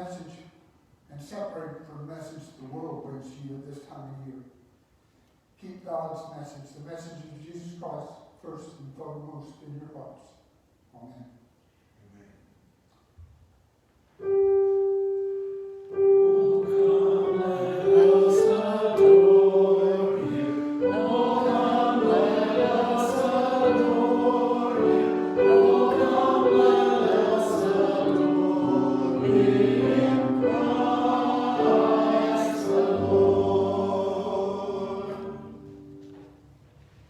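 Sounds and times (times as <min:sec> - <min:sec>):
choir singing a hymn: 0:14.8 - 0:36.3.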